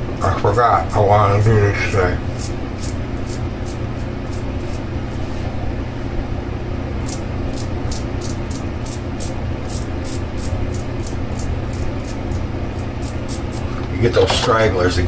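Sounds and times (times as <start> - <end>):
steady low hum: 0.0 - 15.0
razor scraping stubble: 1.2 - 5.5, 7.0 - 14.7.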